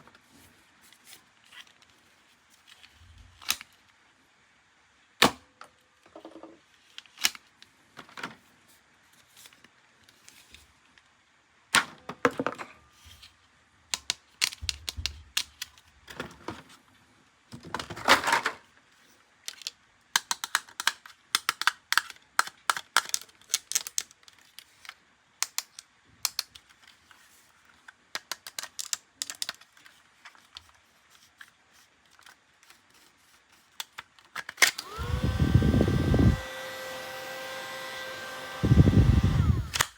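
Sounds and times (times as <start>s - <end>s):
plastic toys clicking and snapping: 7.0s - 7.5s, 13.9s - 16.2s, 19.4s - 27.1s, 27.7s - 35.0s, 39.6s - 39.9s.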